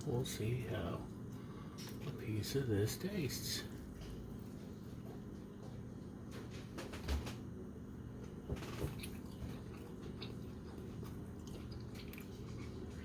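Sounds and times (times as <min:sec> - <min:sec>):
low steady hum: 0:00.0 - 0:13.0
person chewing steak: 0:08.9 - 0:13.0.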